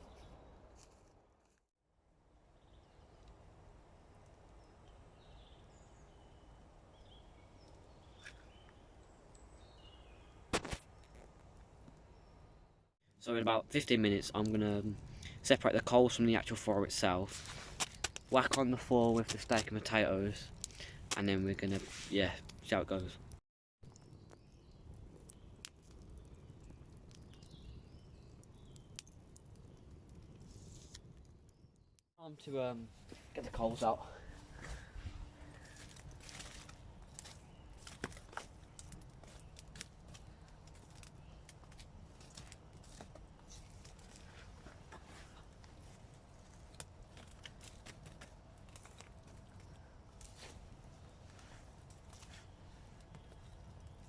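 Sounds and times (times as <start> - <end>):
campfire crackling pops: 10.1 - 12.1, 17.2 - 32.0, 35.6 - 51.0, 51.8 - 54.0.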